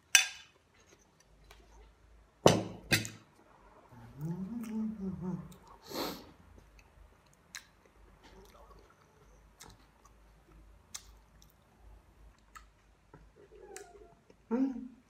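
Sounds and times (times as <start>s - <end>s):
person quietly chewing: 4.0s - 14.5s.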